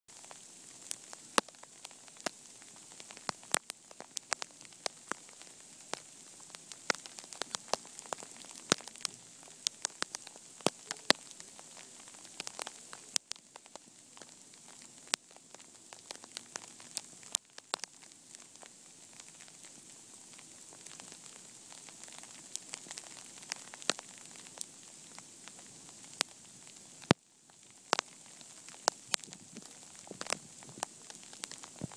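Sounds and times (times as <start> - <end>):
sleet ticking on hard surfaces: 6.9 - 15.2.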